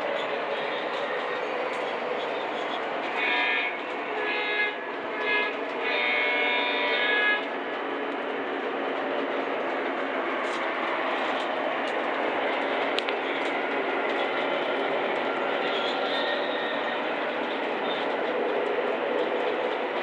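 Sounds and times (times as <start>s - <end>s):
model train rumbling on track: 0.0s - 20.0s
model train horn blasts: 3.2s - 7.5s.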